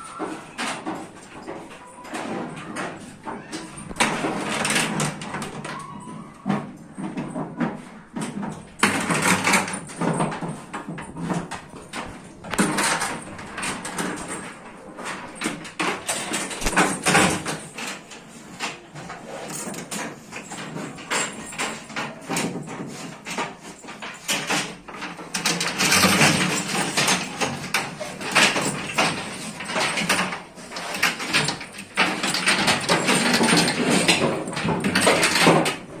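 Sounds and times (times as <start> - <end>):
knocking and clattering: 0.0 - 36.0.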